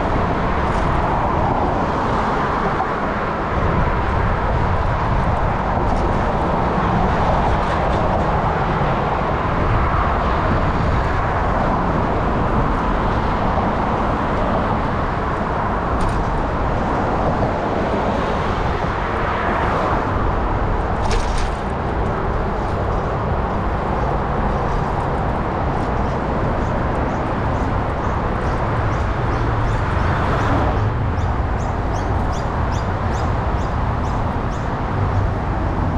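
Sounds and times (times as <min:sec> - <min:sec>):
bicycle wind and road noise: 0:00.0 - 0:35.9.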